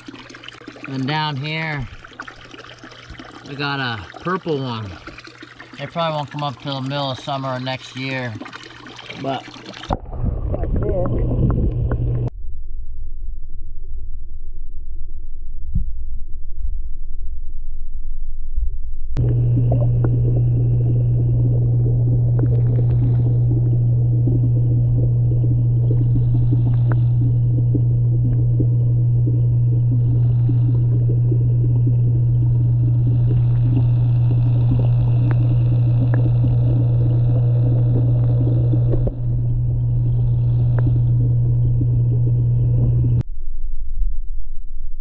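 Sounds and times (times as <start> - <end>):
loud low hum: 9.9 - 45.0.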